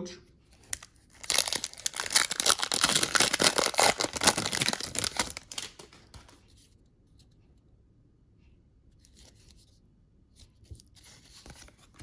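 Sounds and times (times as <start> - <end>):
card wrapper crinkling and tearing: 0.6 - 6.4.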